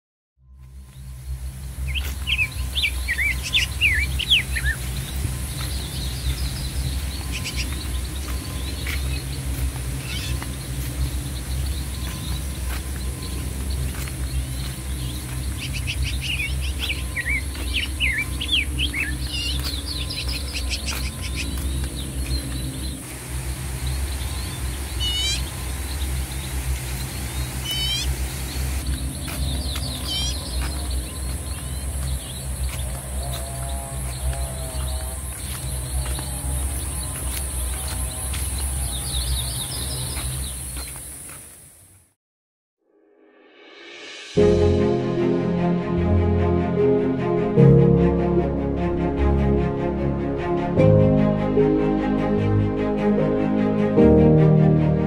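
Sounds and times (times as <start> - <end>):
steady low rumble: 0.5 - 40.8, 43.5 - 55.0
constant high hiss: 0.6 - 42.1
birds chirping and calling: 1.8 - 23.1, 23.7 - 41.4.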